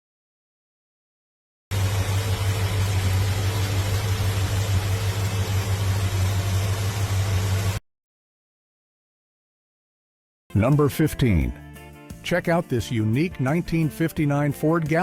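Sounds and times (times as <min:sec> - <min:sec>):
car engine running: 0:01.7 - 0:07.8.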